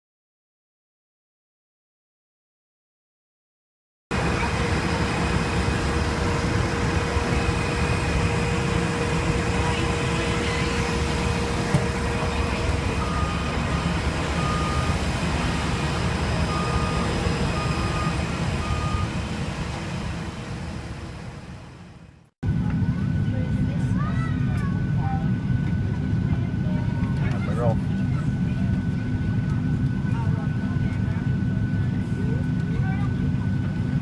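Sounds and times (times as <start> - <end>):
engine rumble with faint hum: 4.2 - 33.1
reversing alarm beeps: 4.5 - 19.4.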